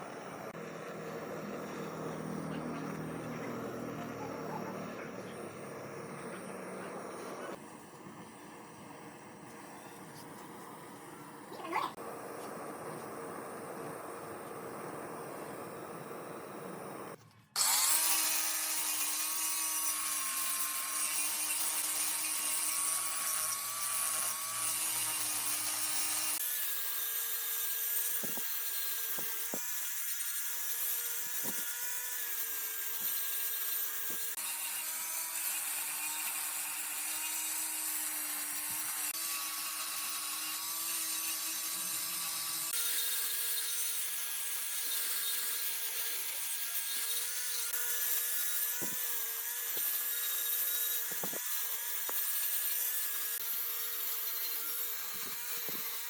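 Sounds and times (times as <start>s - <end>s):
lathe motor hum: 0.0s - 18.7s
tool scraping spinning wood: 0.2s - 26.4s.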